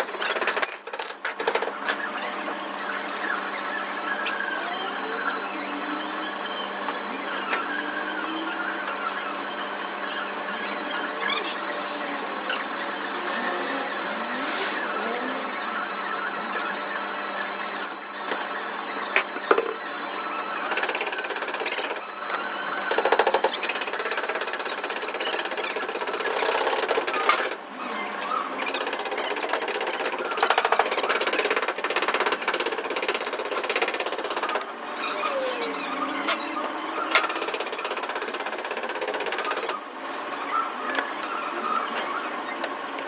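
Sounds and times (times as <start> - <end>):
power tool hammering rapidly: 20.6 - 34.7, 37.0 - 39.8.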